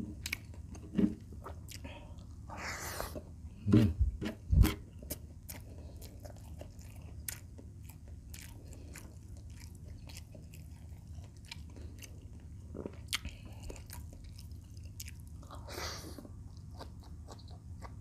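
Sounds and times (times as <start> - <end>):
wet smacking chewing: 4.6 - 18.0.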